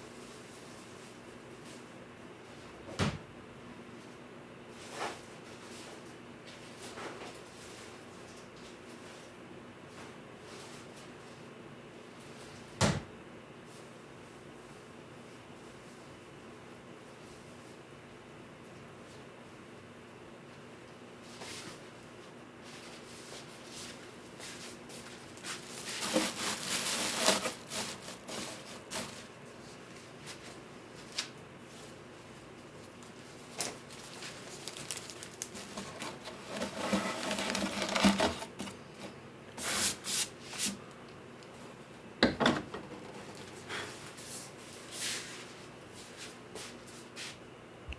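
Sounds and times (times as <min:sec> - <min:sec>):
rubbing and scraping on wood: 0:25.5 - 0:29.3, 0:35.5 - 0:40.8.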